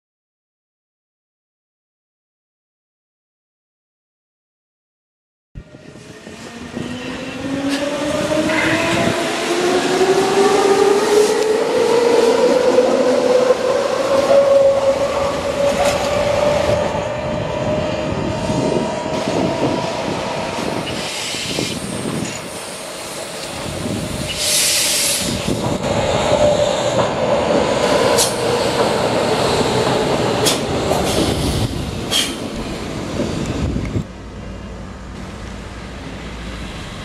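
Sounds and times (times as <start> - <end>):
electric train whine: 5.6 - 37.0.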